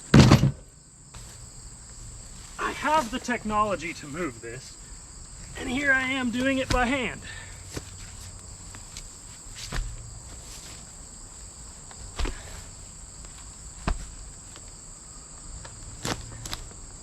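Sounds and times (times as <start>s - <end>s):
wood pieces thumping: 0.0s - 1.4s, 5.6s - 10.8s, 11.9s - 14.7s
insects chirring: 0.0s - 17.0s.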